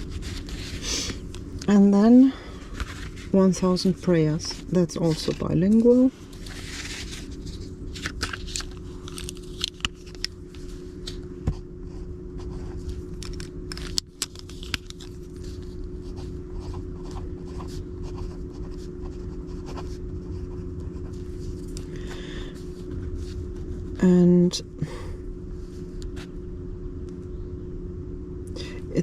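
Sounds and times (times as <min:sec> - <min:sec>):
paper cards rustling: 0:00.0 - 0:11.3, 0:12.5 - 0:18.4
steady low hum: 0:00.0 - 0:29.0.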